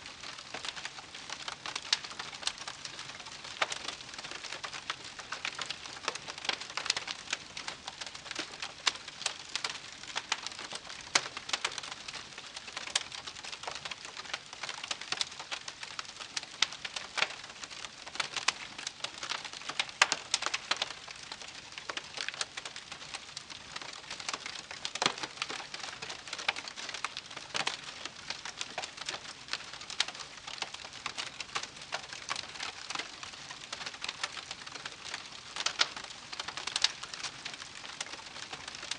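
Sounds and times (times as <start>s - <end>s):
campfire crackling: 0.2s - 38.9s.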